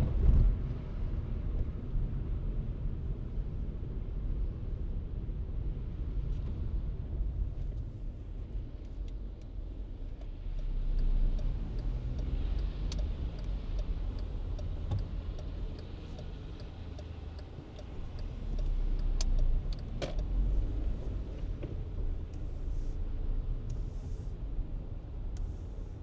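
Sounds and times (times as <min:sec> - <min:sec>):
car engine and tyres rumbling: 0:00.0 - 0:26.0
light regular ticking: 0:10.2 - 0:22.8.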